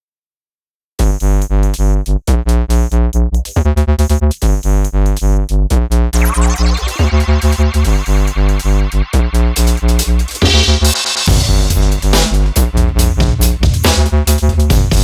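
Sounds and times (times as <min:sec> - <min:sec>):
heavy pulsing bass beat: 0:01.0 - 0:15.0
rising synth sweep: 0:06.2 - 0:12.8
electronic music with synthesizer: 0:06.2 - 0:14.9.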